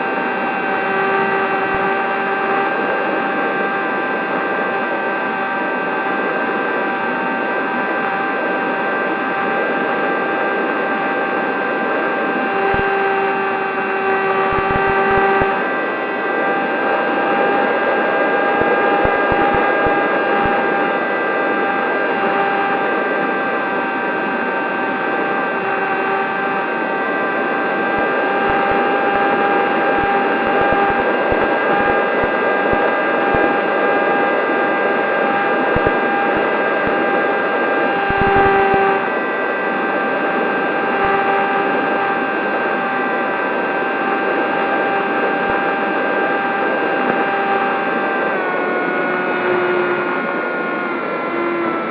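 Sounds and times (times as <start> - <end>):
model plane motor whining: 0.0 - 51.9.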